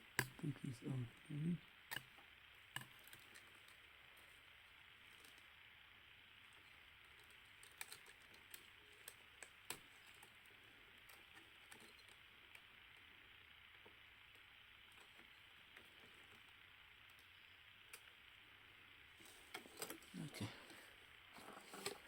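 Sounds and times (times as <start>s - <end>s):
steady hiss: 0.0s - 22.0s
small tool clicks and taps: 0.2s - 0.4s, 1.9s - 2.1s, 2.7s - 3.2s.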